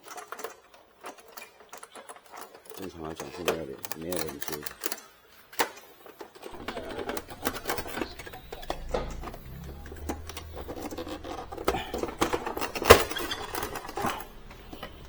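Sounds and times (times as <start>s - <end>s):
plastic printer casing clicking and scraping: 0.0s - 15.0s
low hum: 6.6s - 15.0s.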